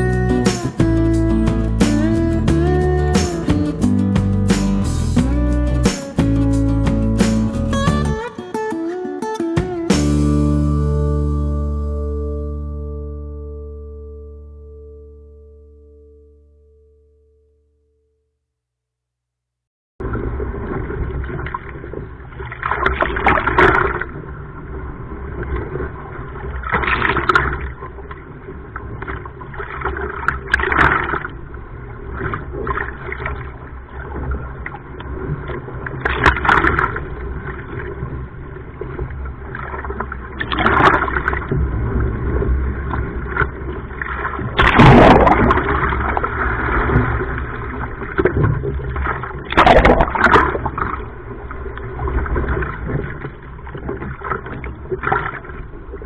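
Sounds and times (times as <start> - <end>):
sea water splashing and sloshing: 20.1 - 56.0.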